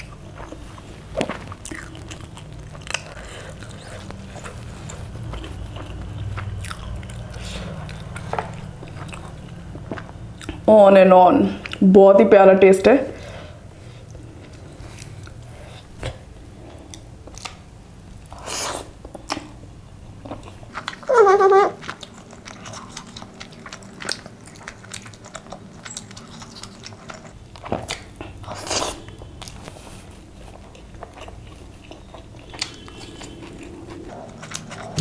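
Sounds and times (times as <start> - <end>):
person chewing: 0.0 - 10.7, 21.8 - 35.0.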